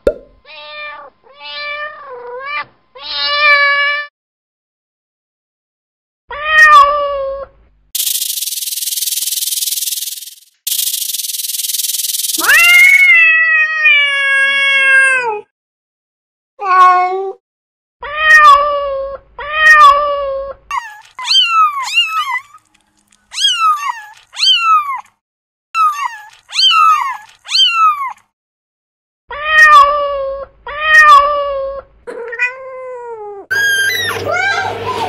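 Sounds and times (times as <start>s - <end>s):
cat meowing: 6.3s - 7.4s, 12.4s - 15.5s, 18.0s - 22.6s, 23.3s - 25.0s, 25.8s - 28.2s, 29.3s - 31.7s.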